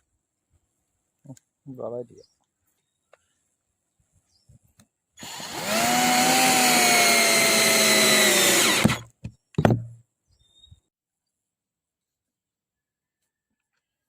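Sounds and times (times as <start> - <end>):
cordless drill motor whine: 5.2 - 9.1.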